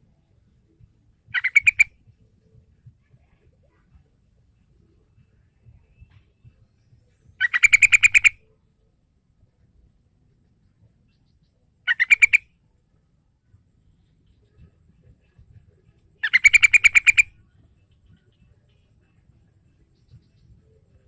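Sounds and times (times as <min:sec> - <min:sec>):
bird rapid chattering call: 0:01.3 - 0:02.0, 0:07.4 - 0:08.4, 0:11.9 - 0:12.5, 0:16.2 - 0:18.3.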